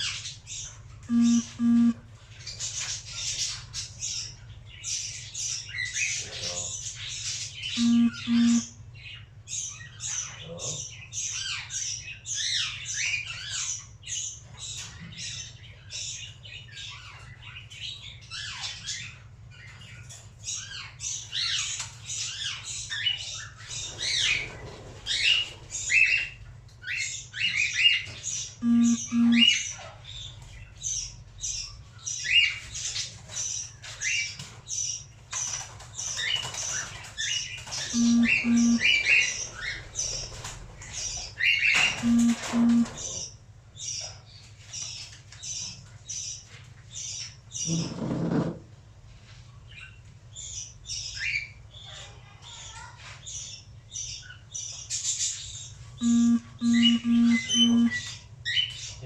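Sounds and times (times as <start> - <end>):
short low beeps: 1.1 - 2.0, 7.8 - 8.7, 28.6 - 29.5, 38.0 - 38.9, 42.0 - 43.0, 56.0 - 58.0.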